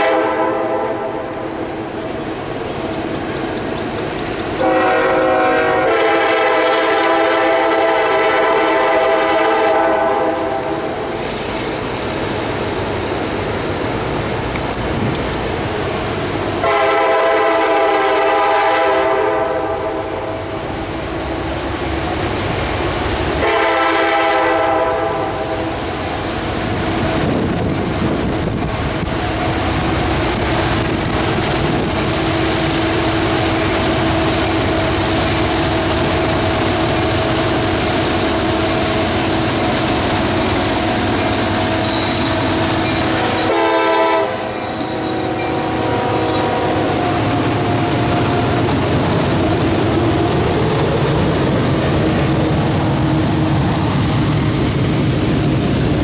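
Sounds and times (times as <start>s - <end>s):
train horn blast: 0.0s - 1.5s, 4.6s - 11.0s, 16.6s - 20.6s, 23.4s - 25.7s, 40.9s - 48.9s
diesel locomotives passing: 0.0s - 56.0s.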